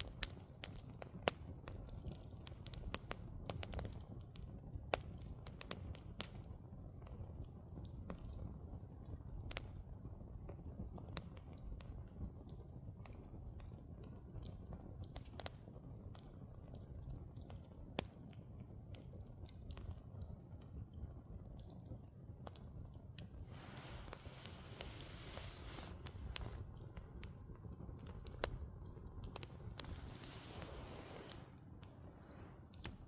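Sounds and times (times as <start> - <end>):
burning logs crackling and popping: 0.0 - 33.0
fire rushing: 23.4 - 33.0.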